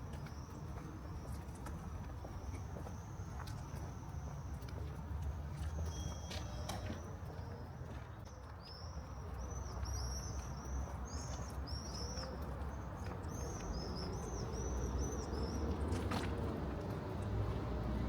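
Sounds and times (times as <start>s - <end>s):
small birds chirping: 5.6s - 16.2s.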